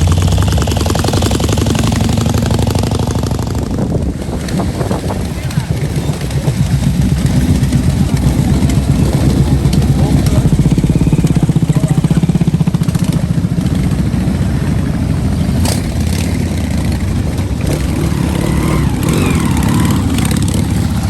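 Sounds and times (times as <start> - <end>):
large engine rumbling: 0.0 - 21.0.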